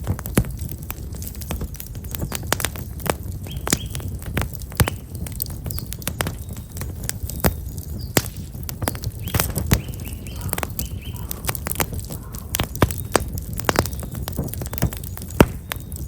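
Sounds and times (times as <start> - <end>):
wood fire crackling and popping: 0.0 - 16.0
small birds chirping: 1.7 - 16.0.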